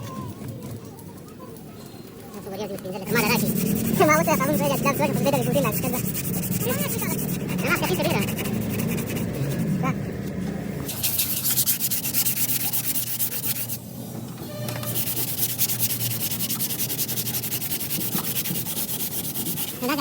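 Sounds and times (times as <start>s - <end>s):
sanding car bodywork: 3.0s - 10.0s, 10.9s - 13.8s, 14.8s - 20.0s.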